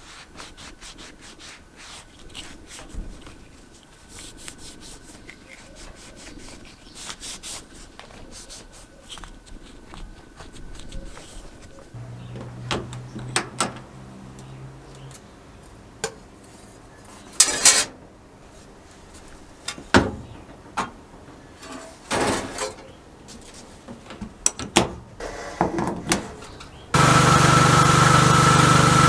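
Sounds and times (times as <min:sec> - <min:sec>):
power tool running: 0:27.0 - 0:29.0.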